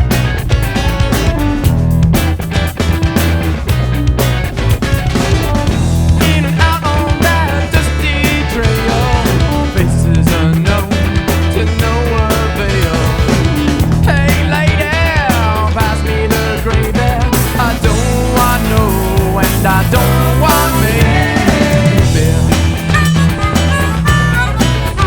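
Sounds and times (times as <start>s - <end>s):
bending lead guitar line: 0.0s - 25.0s
rock music: 0.0s - 25.0s.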